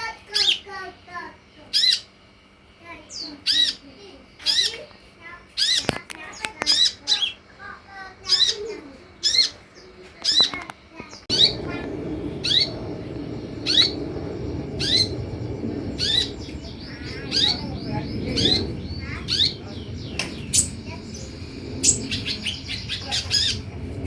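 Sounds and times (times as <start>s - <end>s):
bird chirping: 8.2s - 24.0s.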